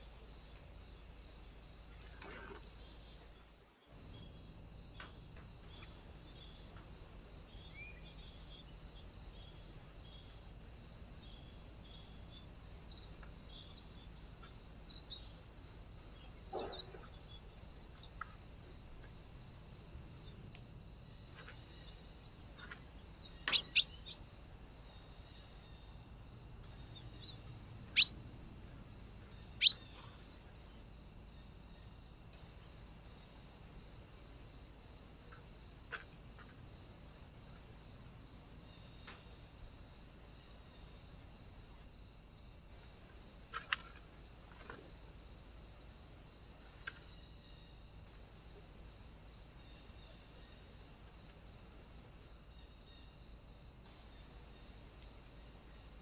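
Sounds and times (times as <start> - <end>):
bird giving sharp high calls: 23.5 - 24.1, 28.0 - 28.2, 29.6 - 29.8.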